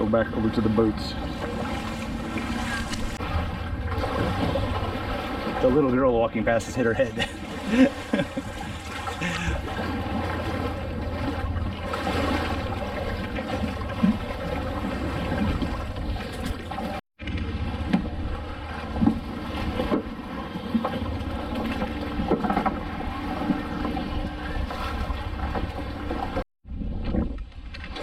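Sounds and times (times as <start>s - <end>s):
boat engine running: 0.0s - 27.1s.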